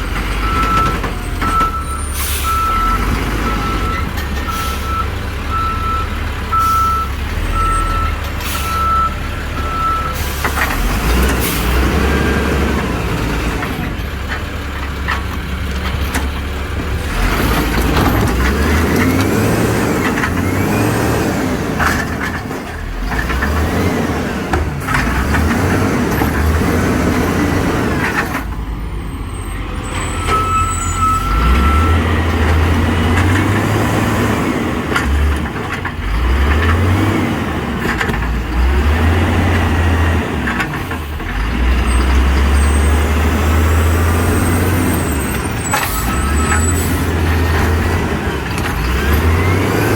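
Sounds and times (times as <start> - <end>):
garbage truck engine revving: 0.0 - 49.9
clanks and knocks: 13.6 - 20.4.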